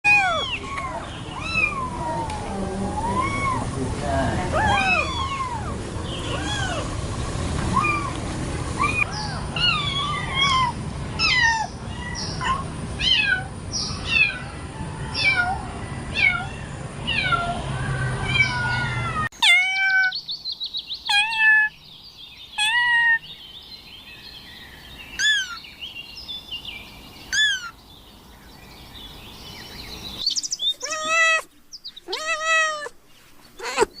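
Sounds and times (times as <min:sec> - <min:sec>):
kitten mewing: 0:19.4 - 0:20.1, 0:21.1 - 0:21.7, 0:30.4 - 0:34.0.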